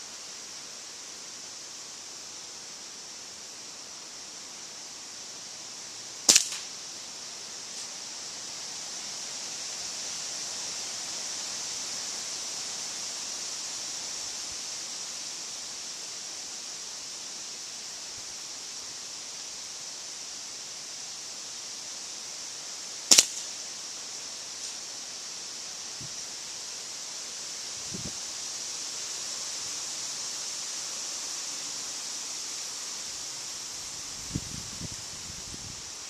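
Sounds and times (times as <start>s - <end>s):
steady high hiss: 0.0s - 36.0s
air rifle shot crack: 6.3s - 6.7s, 23.1s - 23.4s.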